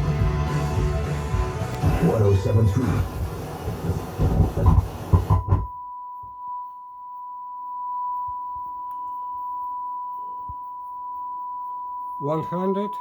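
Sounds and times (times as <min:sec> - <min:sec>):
music: 0:00.0 - 0:04.7
speech: 0:01.9 - 0:03.2, 0:12.2 - 0:13.0
sine test tone: 0:05.4 - 0:13.0.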